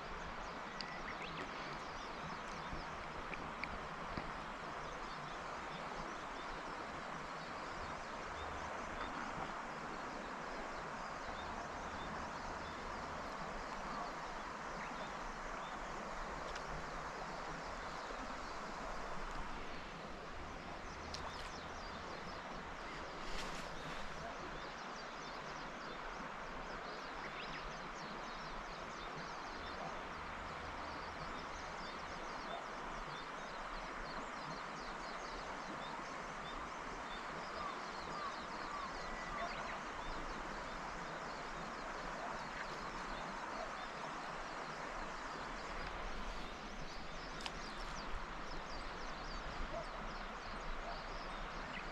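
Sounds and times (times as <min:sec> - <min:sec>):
river water rushing: 0:00.0 - 0:51.9
faint clicks: 0:00.8 - 0:01.6, 0:03.2 - 0:04.3, 0:16.4 - 0:16.7, 0:21.1 - 0:21.6, 0:47.3 - 0:48.0.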